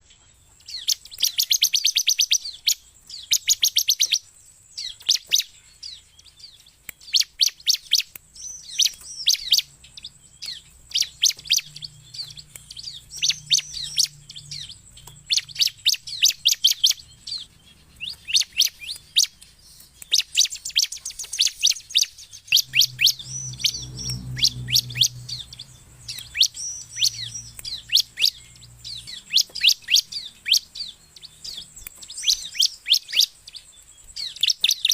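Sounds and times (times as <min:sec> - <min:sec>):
bird singing fast trills: 0:00.0 - 0:34.9
faint low rumble: 0:05.8 - 0:32.5.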